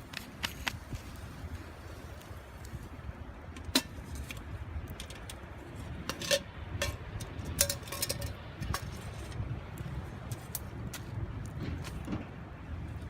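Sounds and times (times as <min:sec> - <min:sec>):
steady low rumble: 0:00.0 - 0:13.0
clinks on metal wood stove: 0:06.0 - 0:09.0.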